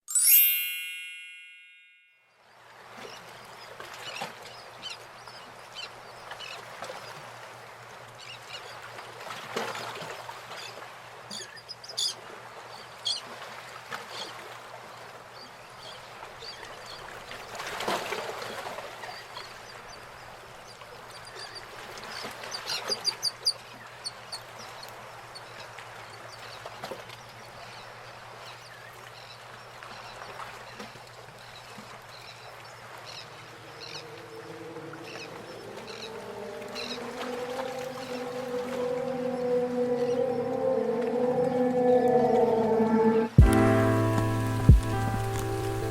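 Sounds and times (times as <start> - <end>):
birds chirping: 32.8 - 45.9.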